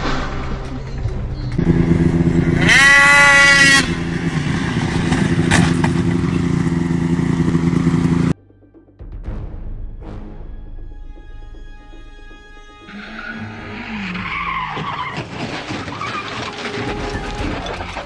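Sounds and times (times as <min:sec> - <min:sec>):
vehicle engine drone: 0:00.0 - 0:08.4.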